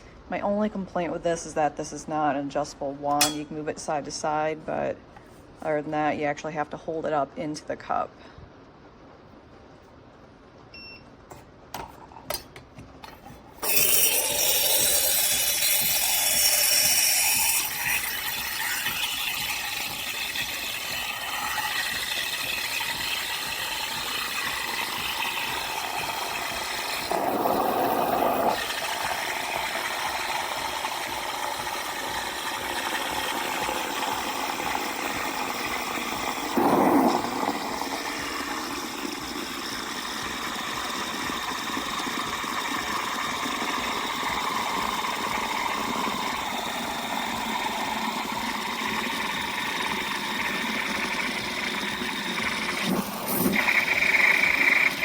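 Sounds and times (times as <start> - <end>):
steam wand steaming milk: 13.5 - 55.0.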